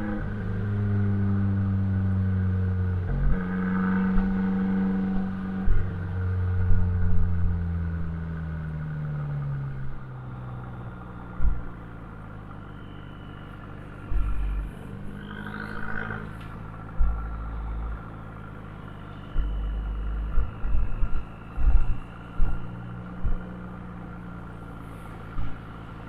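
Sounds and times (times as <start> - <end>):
car engine driving: 0.0 - 26.0
low thump: 5.1 - 7.6, 11.3 - 11.8, 14.1 - 14.7, 16.9 - 18.0, 19.3 - 23.6.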